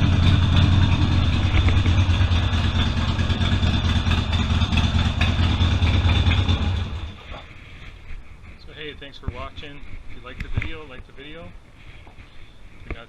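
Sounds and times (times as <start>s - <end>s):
motorcycle engine idling: 0.0s - 7.3s
engine shutting down: 0.0s - 7.4s.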